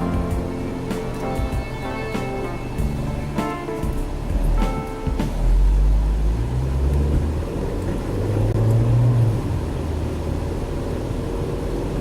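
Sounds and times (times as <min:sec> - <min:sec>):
car engine accelerating: 0:00.0 - 0:12.0
road noise: 0:00.0 - 0:12.0.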